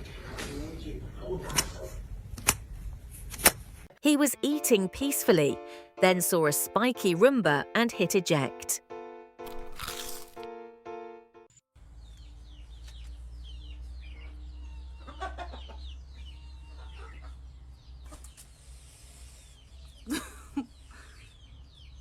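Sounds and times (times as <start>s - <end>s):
birds chirping: 11.8s - 22.0s.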